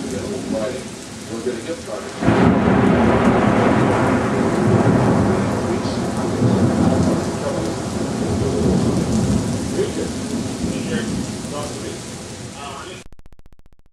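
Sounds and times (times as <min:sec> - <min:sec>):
light rain: 0:00.0 - 0:13.0
long rumble of thunder: 0:02.2 - 0:12.6.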